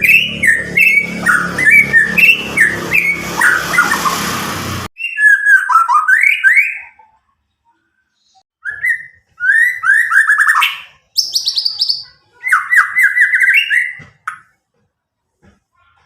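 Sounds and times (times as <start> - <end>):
bird singing whistled phrases: 5.0 - 7.1, 8.6 - 14.0.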